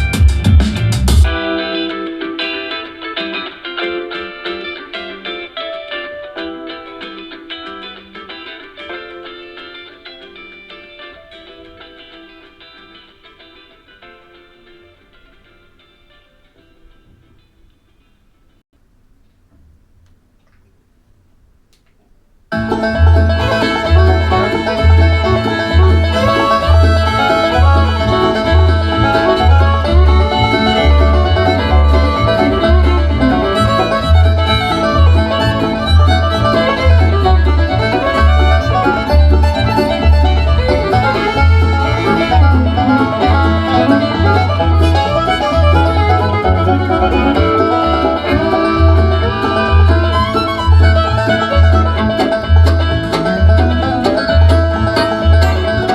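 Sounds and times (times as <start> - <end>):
deep bass beat: 0.0 - 1.5, 22.6 - 55.9
bluegrass music with banjo and fiddle: 22.5 - 55.9.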